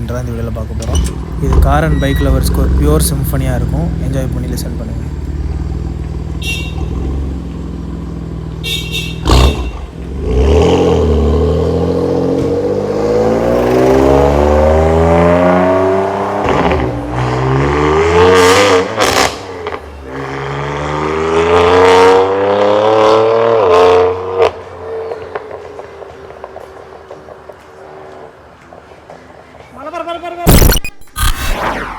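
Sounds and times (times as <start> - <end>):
car engine revving: 0.7 - 24.3.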